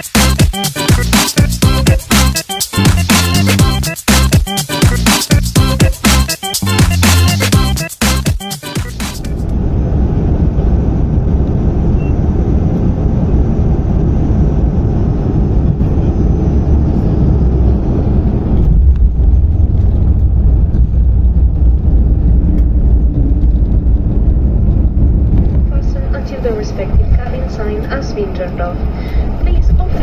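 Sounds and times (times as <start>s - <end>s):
airliner cabin rumble: 8.9s - 30.0s.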